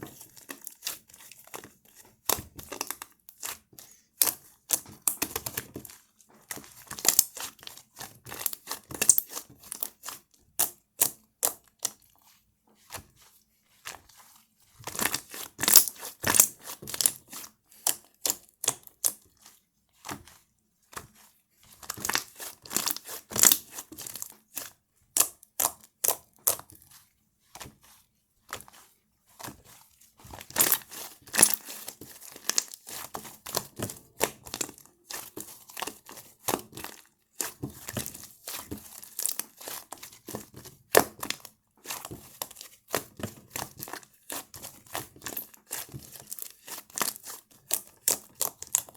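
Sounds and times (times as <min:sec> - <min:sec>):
slime crackling and popping: 0:15.1 - 0:19.2, 0:21.9 - 0:24.3, 0:30.4 - 0:34.6, 0:39.2 - 0:39.7.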